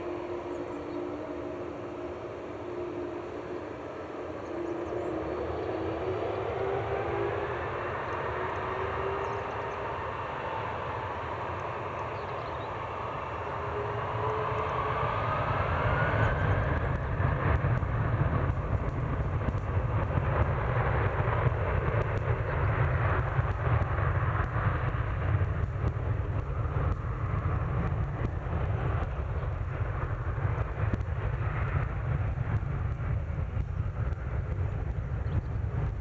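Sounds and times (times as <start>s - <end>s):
jet engine whine rising: 0.0s - 36.0s
low rumble: 13.3s - 36.0s.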